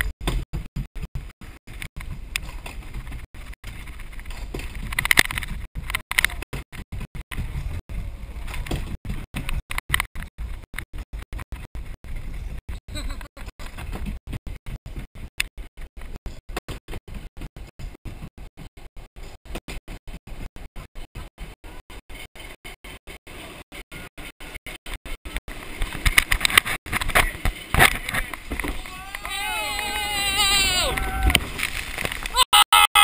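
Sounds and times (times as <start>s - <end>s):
boat ride low rumble: 0.0s - 32.4s
water and wind noise: 0.0s - 32.5s
riders' voices: 27.2s - 31.4s.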